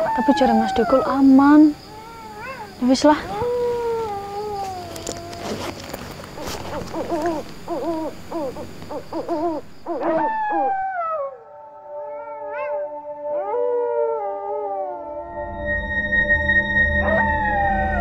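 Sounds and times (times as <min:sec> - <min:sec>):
wavering howl-like cries: 0:00.0 - 0:18.0
short arched animal calls: 0:06.4 - 0:10.9.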